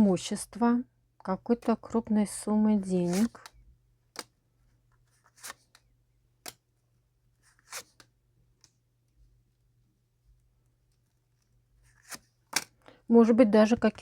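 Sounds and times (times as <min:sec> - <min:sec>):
cards rustling and clicking: 0:02.9 - 0:06.7, 0:07.4 - 0:08.8, 0:10.9 - 0:12.8.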